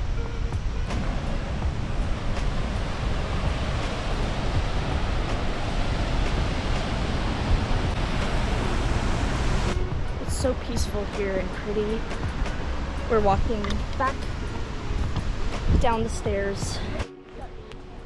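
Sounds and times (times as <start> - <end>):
waterfall roaring: 0.8 - 17.0.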